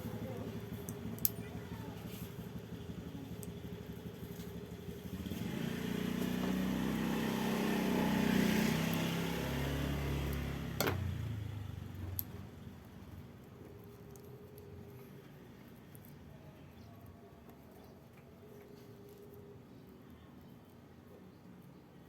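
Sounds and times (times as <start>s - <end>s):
vehicle engine passing by: 1.8s - 13.2s.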